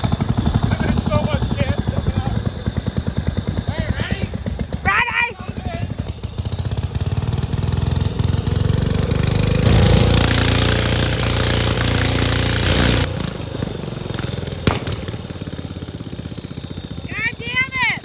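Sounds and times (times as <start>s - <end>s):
lawn tractor engine running: 0.0s - 18.0s
sharp crack: 14.1s - 15.8s.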